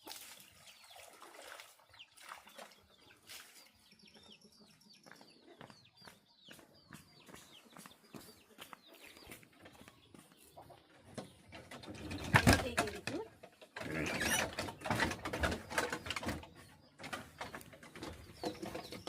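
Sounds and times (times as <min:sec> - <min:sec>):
chickens clucking: 0:02.8 - 0:19.0.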